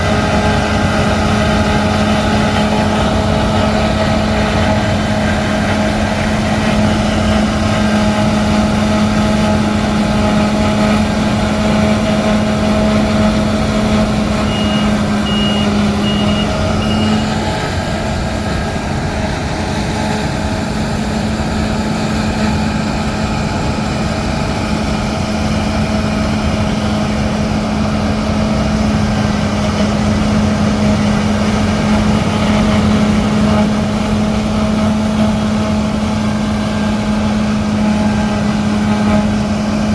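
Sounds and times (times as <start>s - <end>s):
diesel machinery engines humming: 0.0s - 39.9s
warning beeper short beeps: 14.4s - 17.4s.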